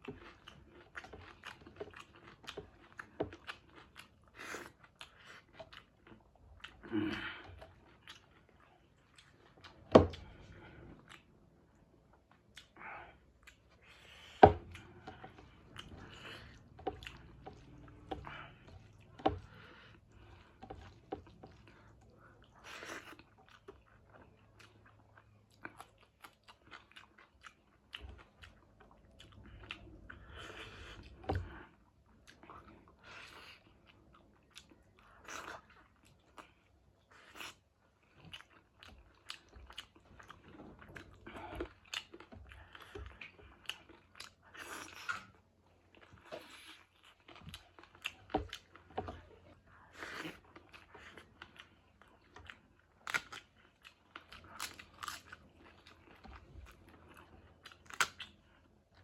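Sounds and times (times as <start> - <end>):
wet chewing with crunches: 0.0 - 59.0.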